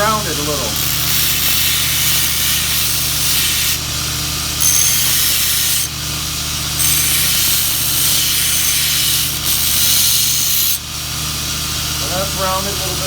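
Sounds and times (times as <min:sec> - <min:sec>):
belt grinder motor hum: 0:00.0 - 0:06.0, 0:06.6 - 0:10.8
steel grinding against belt: 0:00.8 - 0:03.8, 0:04.6 - 0:05.9, 0:06.8 - 0:10.8.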